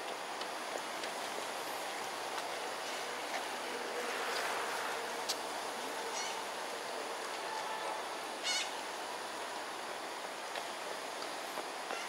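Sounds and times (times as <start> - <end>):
trilled bird calls: 8.4 - 8.8.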